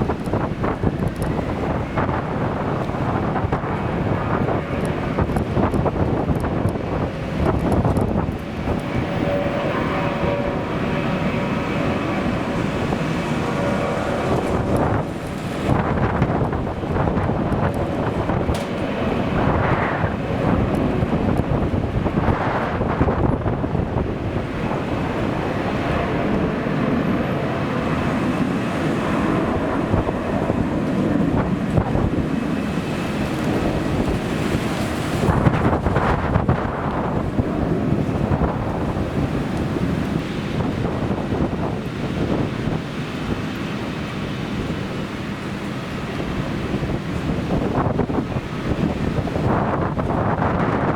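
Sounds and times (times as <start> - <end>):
faint engine whine: 0.0 - 23.0
jet engines rushing: 0.0 - 50.9
wind buffeting microphone: 0.0 - 50.9.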